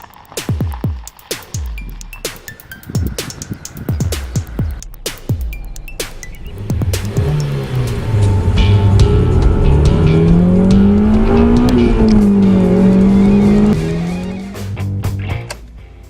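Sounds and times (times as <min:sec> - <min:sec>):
car engine accelerating: 0:03.0 - 0:15.8.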